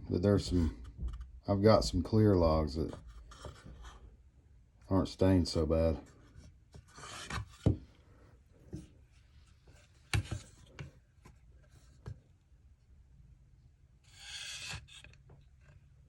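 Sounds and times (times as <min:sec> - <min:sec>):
wooden board scraping: 0:00.2 - 0:02.1, 0:06.2 - 0:07.9, 0:14.0 - 0:15.8.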